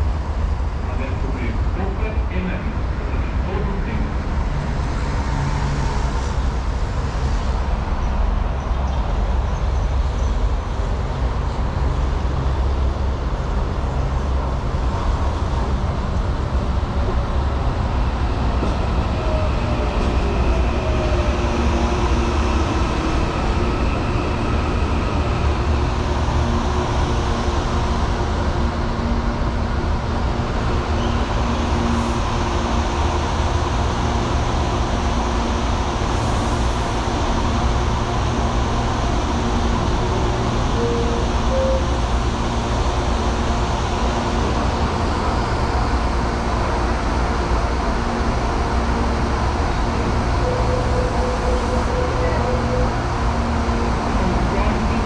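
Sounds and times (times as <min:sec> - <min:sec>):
electric train rumbling: 0:00.0 - 0:55.0
train whining tone: 0:39.6 - 0:42.4, 0:49.7 - 0:55.0.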